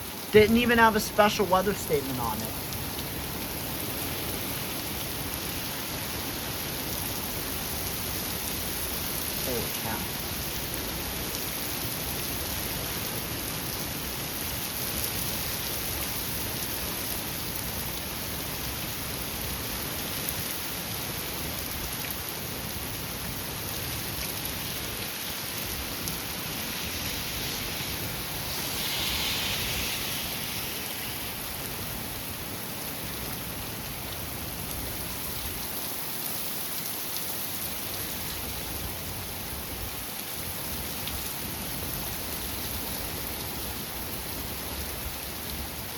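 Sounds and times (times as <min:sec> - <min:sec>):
heavy rain: 0:00.0 - 0:45.9
gusty wind: 0:24.0 - 0:35.7.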